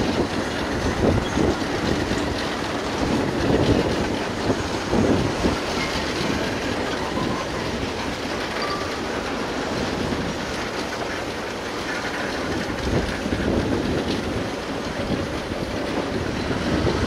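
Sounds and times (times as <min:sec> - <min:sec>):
wind on microphone: 0:00.0 - 0:08.5, 0:12.1 - 0:17.0
freight train rail rumble: 0:00.0 - 0:17.0.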